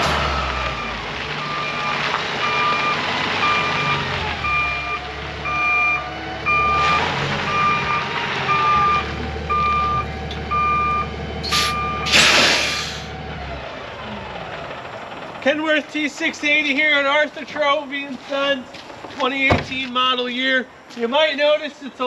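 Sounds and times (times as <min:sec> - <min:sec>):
truck reversing alarm beeping: 0:00.0 - 0:15.3
low engine hum: 0:00.0 - 0:15.5
air hiss bursts: 0:11.5 - 0:13.1.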